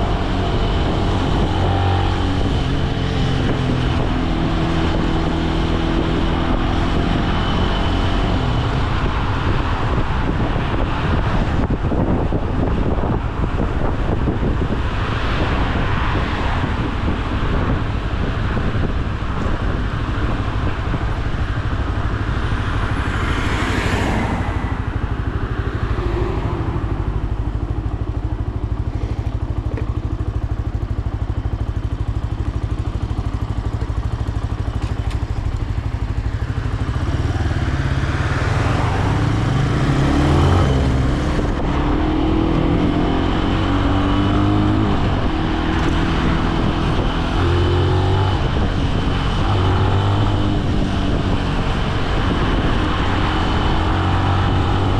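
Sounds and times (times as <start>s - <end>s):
wind rushing: 0.0s - 28.9s
motorcycle engine revving: 16.8s - 54.9s.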